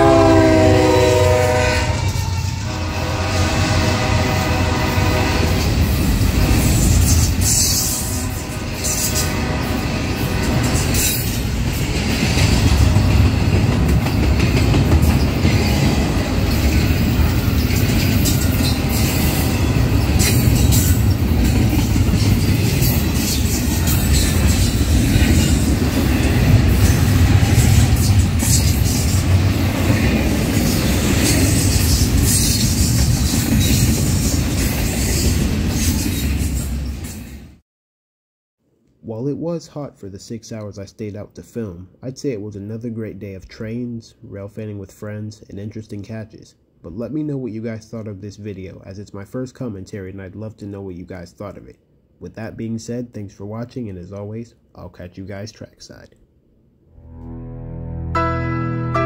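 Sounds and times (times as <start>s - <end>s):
train wheels rumbling on rails: 0.0s - 37.6s.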